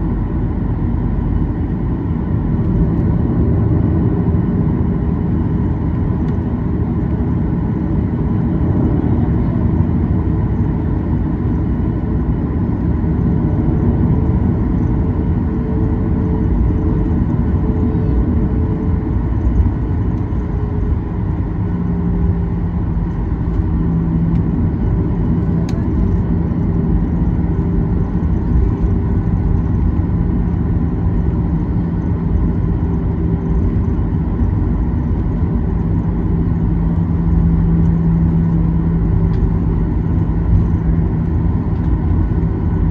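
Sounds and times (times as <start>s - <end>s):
aircraft cabin rumble: 0.0s - 42.9s
jet engines humming: 0.0s - 42.9s.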